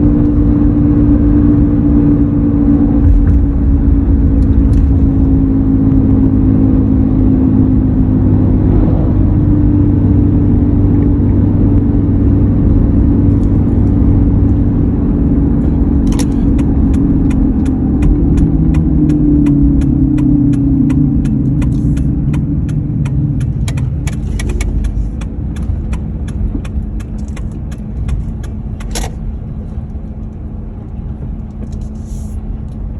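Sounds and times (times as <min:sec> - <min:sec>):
truck driving hum: 0:00.0 - 0:32.9
regular ticking clicks: 0:16.0 - 0:29.2.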